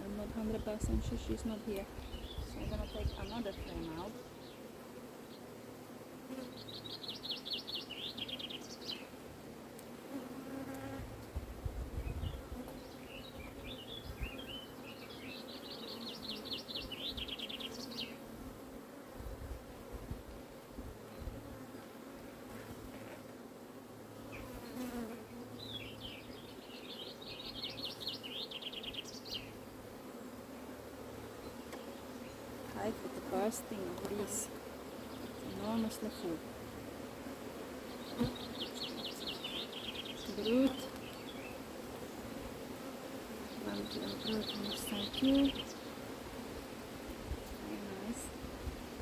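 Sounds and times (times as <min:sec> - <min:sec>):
bees buzzing: 0:00.0 - 0:49.0
songbird trilling: 0:43.5 - 0:45.9.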